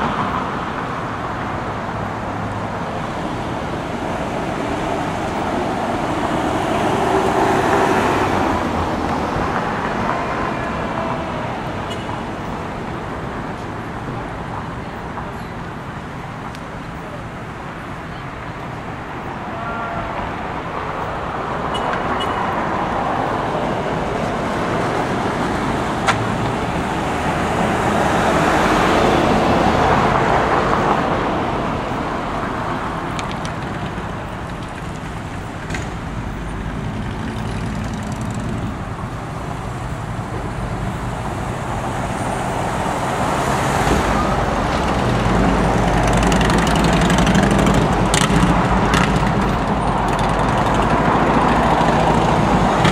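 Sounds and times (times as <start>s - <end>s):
vehicles passing: 0.0s - 52.9s.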